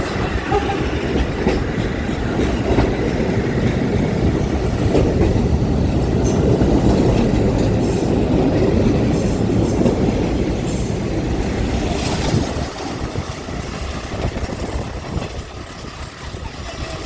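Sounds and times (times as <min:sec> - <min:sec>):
subway train running past: 0:00.0 - 0:17.0
train wheels squealing: 0:09.1 - 0:13.2.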